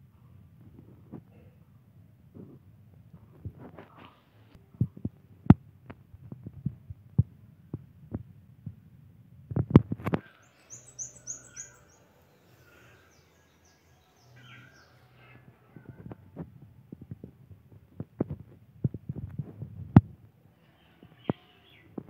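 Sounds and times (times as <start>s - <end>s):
bird singing: 10.2s - 15.4s.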